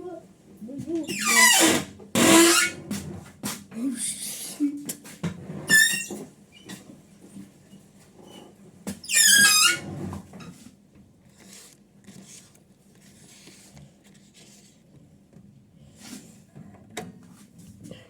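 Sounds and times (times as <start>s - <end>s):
high-pitched squeak: 1.1s - 2.8s, 5.7s - 6.2s, 9.1s - 9.8s.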